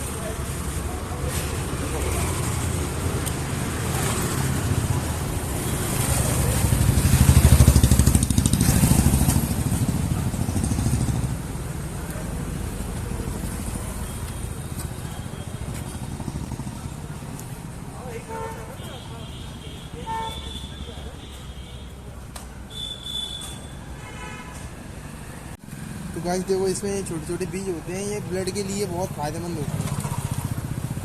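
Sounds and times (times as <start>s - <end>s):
traffic: 0.0s - 31.0s
motorcycle passing by: 0.6s - 17.8s, 29.0s - 31.0s.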